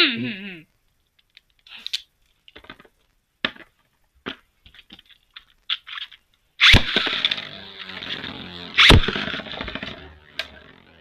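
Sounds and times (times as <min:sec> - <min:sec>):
spinning tops grinding and whirring: 0:06.0 - 0:11.0
spinning top launch: 0:06.6 - 0:11.0.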